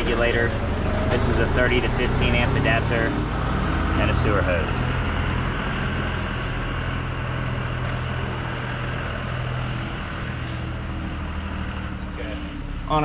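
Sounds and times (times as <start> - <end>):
constant rushing noise: 0.0 - 13.0
low machine hum: 4.2 - 13.0.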